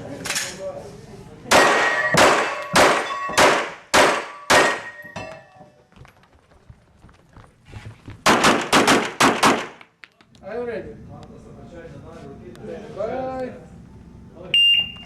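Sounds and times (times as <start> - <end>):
handgun shots: 1.5 - 5.0, 8.3 - 9.9
steel targets ringing: 1.6 - 5.8.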